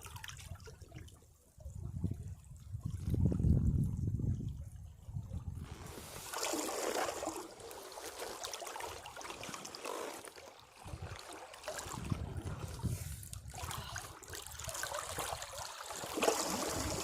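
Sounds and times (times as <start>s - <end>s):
sea waves breaking on rocks: 14.8s - 17.0s.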